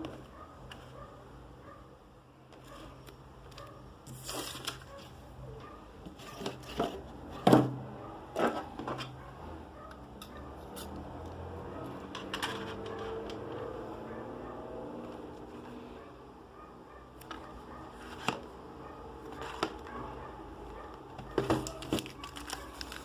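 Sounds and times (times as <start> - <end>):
rustling packaging: 2.6 - 5.2, 21.2 - 23.0.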